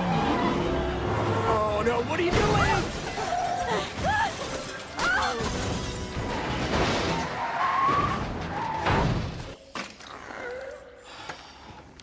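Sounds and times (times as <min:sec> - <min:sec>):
vehicle skidding and running: 0:00.0 - 0:01.7.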